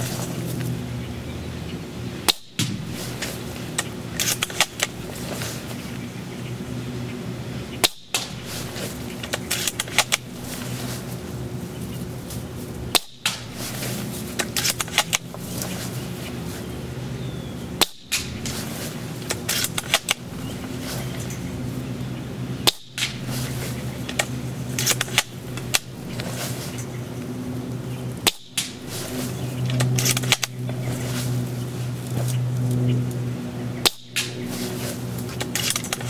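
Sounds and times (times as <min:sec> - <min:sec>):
airsoft rifle shot: 0:02.3 - 0:03.2.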